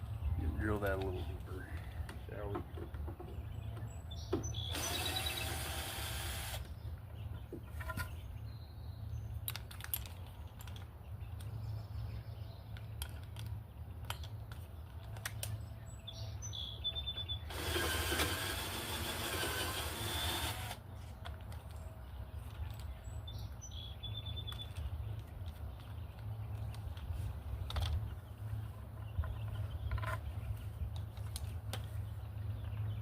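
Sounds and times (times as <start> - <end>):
power drill boring into wood: 4.7 - 6.7, 17.5 - 20.8.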